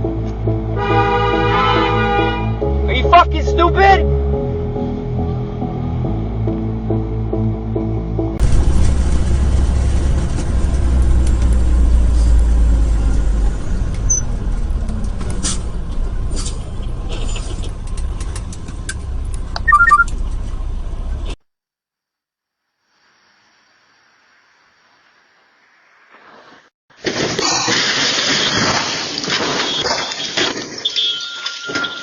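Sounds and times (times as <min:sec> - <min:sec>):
vehicle driving rumble: 0:04.2 - 0:21.4
quick beeps: 0:19.6 - 0:20.1.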